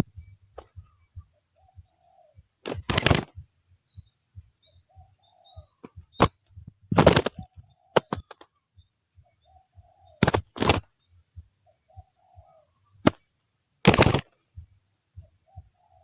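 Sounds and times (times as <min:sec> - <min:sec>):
dove cooing softly: 0:00.0 - 0:03.4, 0:04.6 - 0:06.2, 0:09.2 - 0:10.8, 0:11.6 - 0:13.0, 0:15.2 - 0:16.0
loud rustling bursts: 0:02.6 - 0:03.4, 0:06.9 - 0:08.4, 0:10.2 - 0:10.9, 0:13.8 - 0:14.4.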